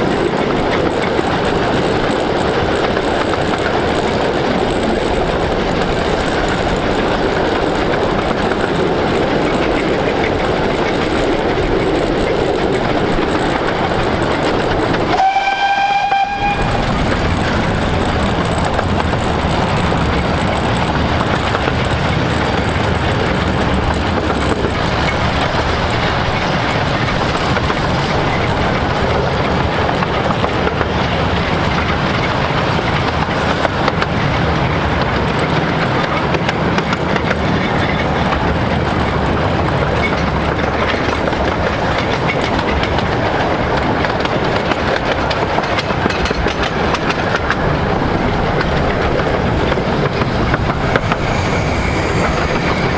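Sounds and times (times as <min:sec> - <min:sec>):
train wheels on rails: 0:00.0 - 0:52.9
steam whistle blast: 0:15.1 - 0:17.0.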